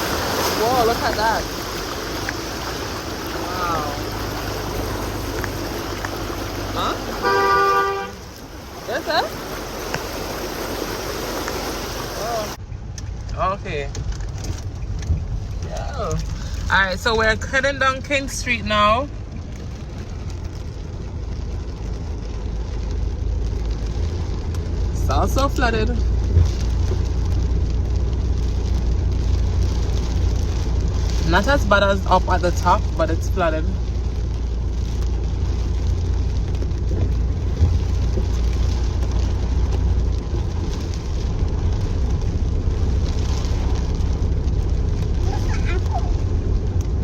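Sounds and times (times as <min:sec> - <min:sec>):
water hiss: 0:00.0 - 0:12.6
car engine: 0:00.0 - 0:47.0
road rumble: 0:00.0 - 0:47.0.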